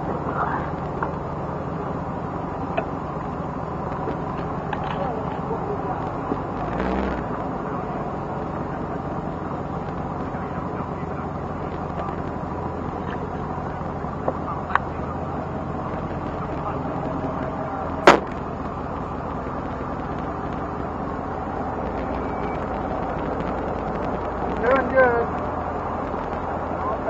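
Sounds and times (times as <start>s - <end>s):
car engine running: 0.0s - 27.0s
loud sharp crack: 18.0s - 18.5s.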